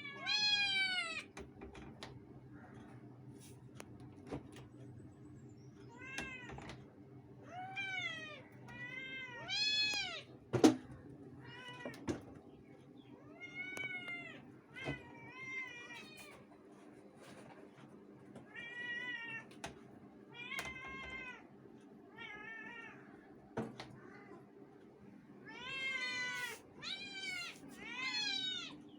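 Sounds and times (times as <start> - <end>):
cats meowing: 0.0 - 1.4, 5.8 - 10.4, 11.3 - 12.4, 13.0 - 16.6, 18.4 - 19.7, 20.3 - 21.5, 22.1 - 24.5, 25.4 - 28.9.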